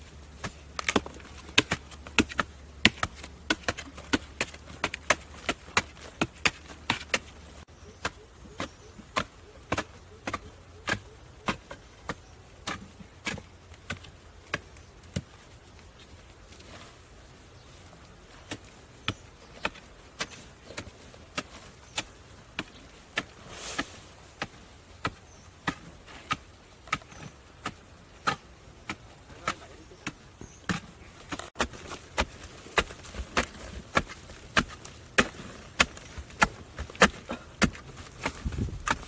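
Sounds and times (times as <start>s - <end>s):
short rustle: 23.3s - 24.3s.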